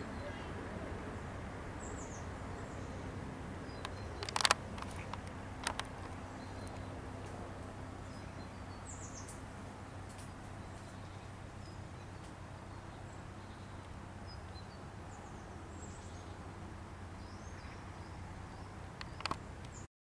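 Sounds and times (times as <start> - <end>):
low background hum: 0.0 - 19.9.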